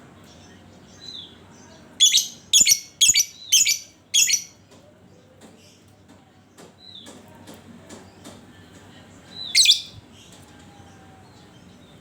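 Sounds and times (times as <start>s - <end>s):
faint bird chirps: 2.0s - 4.6s, 9.4s - 10.0s
bird squawking: 9.6s - 9.9s.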